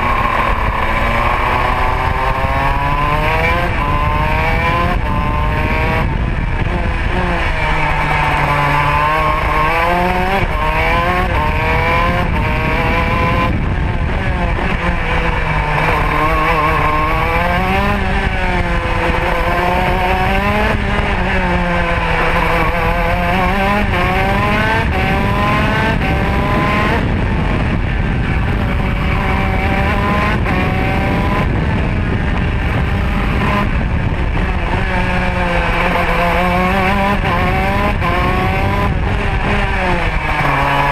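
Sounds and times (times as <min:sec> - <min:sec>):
kart engine revving: 0:00.0 - 0:40.9.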